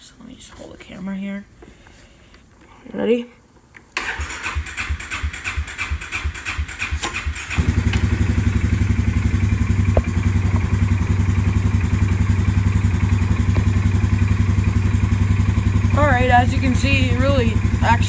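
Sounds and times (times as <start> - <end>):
starter cranking engine: 4.0 - 18.0
atv engine idling: 5.2 - 18.0.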